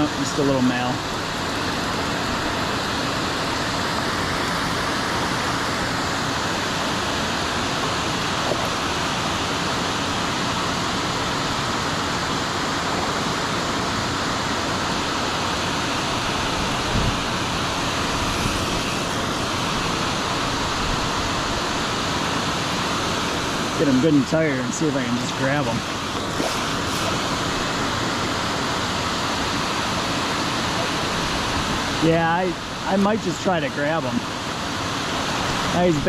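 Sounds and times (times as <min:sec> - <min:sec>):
fast-flowing creek water: 0:00.0 - 0:36.0.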